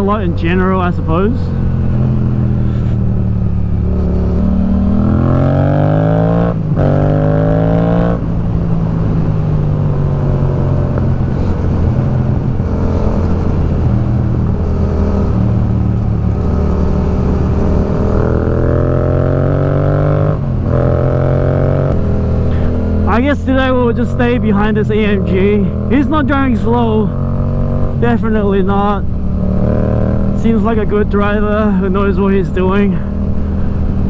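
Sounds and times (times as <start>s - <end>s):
motorcycle engine accelerating: 0.0s - 34.0s
wind and road noise: 0.0s - 34.0s.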